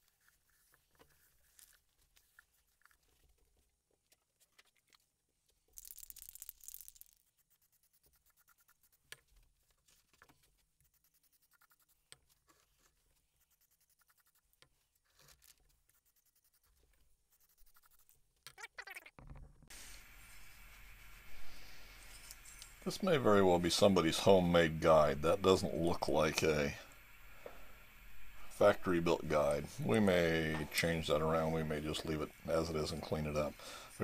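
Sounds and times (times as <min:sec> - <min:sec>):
faint rubbing and light knocks: 0:00.0 - 0:05.6, 0:07.1 - 0:18.2
aerosol spray can hissing: 0:19.7 - 0:22.8.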